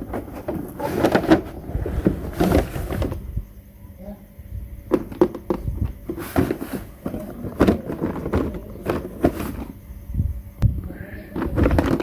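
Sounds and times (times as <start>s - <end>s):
rustling: 0.0s - 3.4s, 4.9s - 9.8s, 11.2s - 12.0s.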